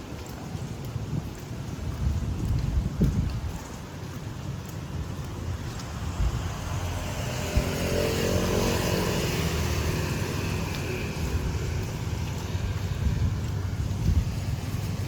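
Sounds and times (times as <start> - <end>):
wind rumbling on microphone: 0.0 - 15.0
vehicle engine passing: 5.8 - 13.4.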